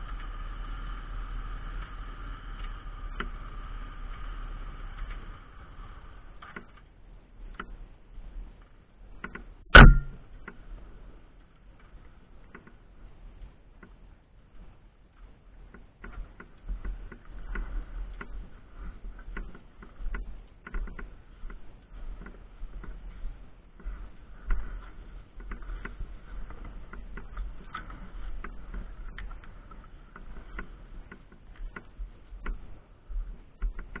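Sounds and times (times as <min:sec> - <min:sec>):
wind rumble on microphone: 0:00.0 - 0:34.0
bicycle clicks and rattles: 0:01.7 - 0:06.9, 0:11.9 - 0:12.8, 0:15.7 - 0:34.0.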